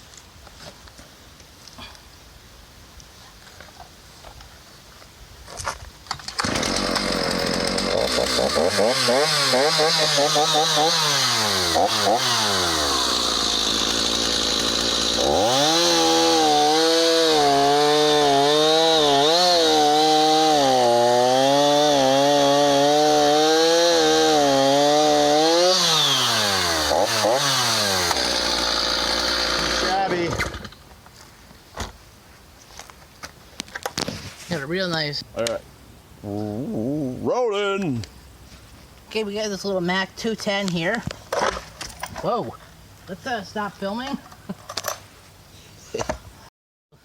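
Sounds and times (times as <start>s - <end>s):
chainsaw engine revving: 6.3s - 30.6s.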